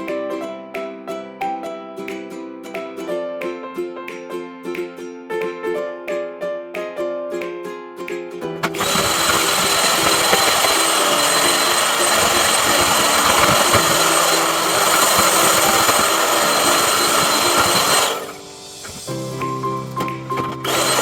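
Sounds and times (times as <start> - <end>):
background music: 0.0 - 21.0
electric motor whining: 8.7 - 19.1, 20.4 - 21.0.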